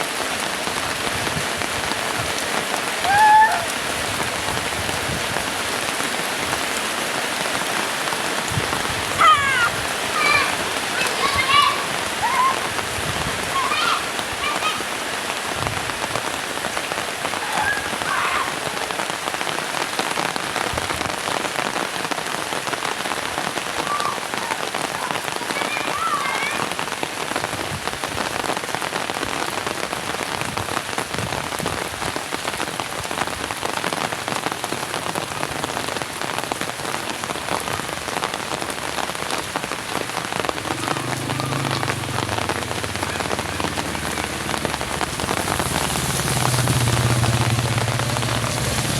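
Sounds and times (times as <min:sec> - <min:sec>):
heavy rain pattering: 0:00.0 - 0:48.9
low rumble: 0:41.4 - 0:48.9.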